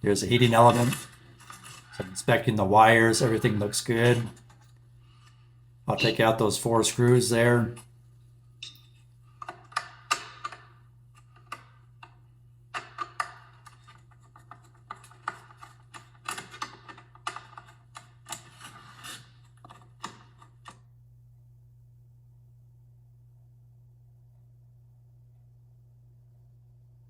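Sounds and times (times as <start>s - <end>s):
screwdriver clicking and scraping: 12.8s - 20.8s.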